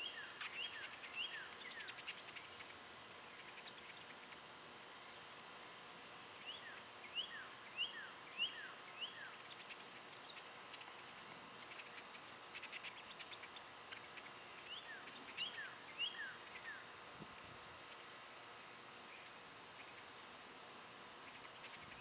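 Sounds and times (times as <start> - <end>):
sharp high ticks: 9.3 - 15.6.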